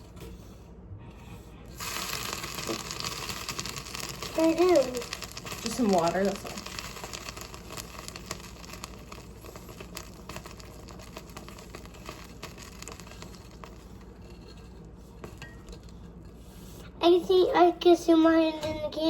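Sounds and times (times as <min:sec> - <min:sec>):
spoon stirring in a pot: 0:01.7 - 0:16.8.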